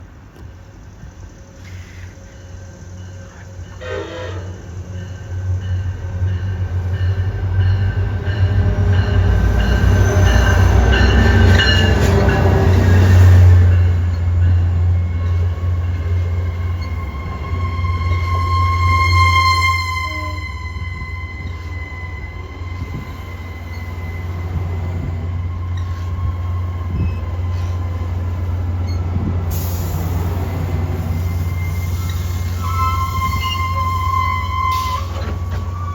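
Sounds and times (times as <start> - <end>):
locomotive rumble: 0.1 - 35.9
high wheel squealing: 3.2 - 5.1, 15.0 - 35.9.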